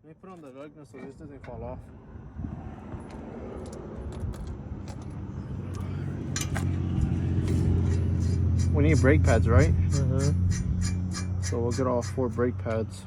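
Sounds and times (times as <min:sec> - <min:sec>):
lug nut being threaded on: 0:03.1 - 0:06.8.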